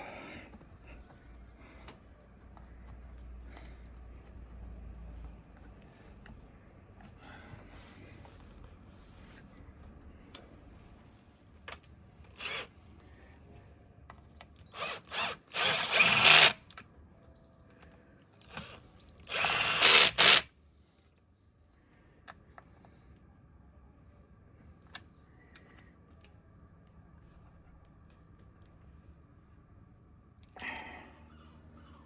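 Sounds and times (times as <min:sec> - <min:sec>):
power drill running: 0:12.4 - 0:12.7, 0:14.7 - 0:16.6, 0:19.3 - 0:20.5.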